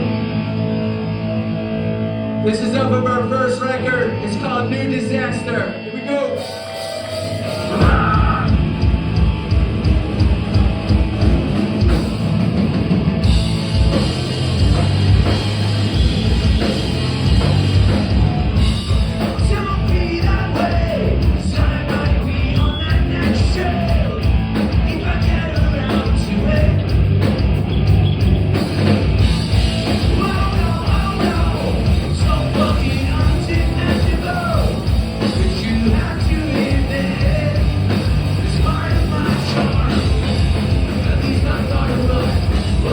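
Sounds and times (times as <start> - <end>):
punk rock band playing: 0.0 - 42.9
person singing: 7.5 - 8.7, 30.0 - 42.9
steady drum beat: 7.6 - 42.9.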